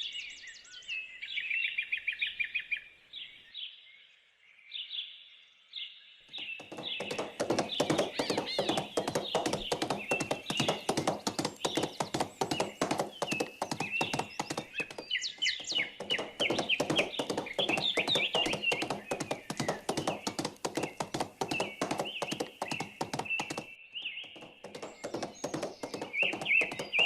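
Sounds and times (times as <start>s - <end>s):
small birds chirping: 0.0s - 27.0s
horse hooves clip-clopping: 6.4s - 27.0s.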